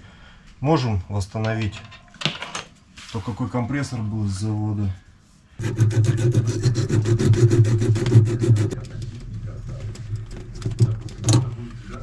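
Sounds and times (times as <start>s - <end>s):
rapid rasping strokes: 5.6s - 8.8s.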